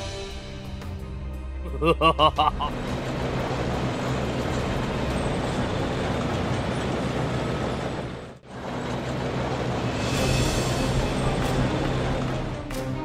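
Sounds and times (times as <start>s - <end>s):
toy tank engine and track noise: 2.7s - 13.0s.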